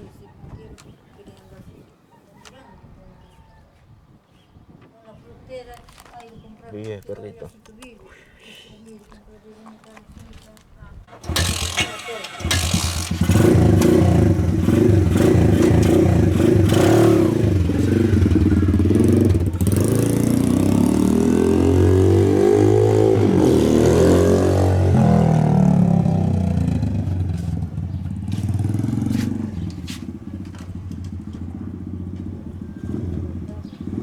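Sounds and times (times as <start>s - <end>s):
motorbike engine revving: 11.1s - 34.0s.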